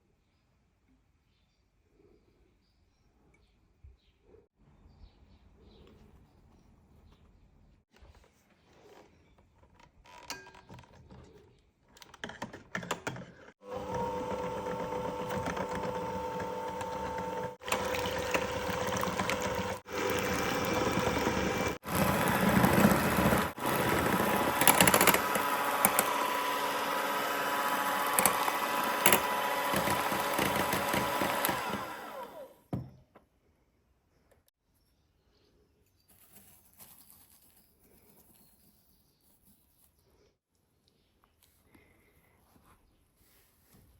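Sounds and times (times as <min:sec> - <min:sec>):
kitchen appliance motor running: 0:13.6 - 0:32.6.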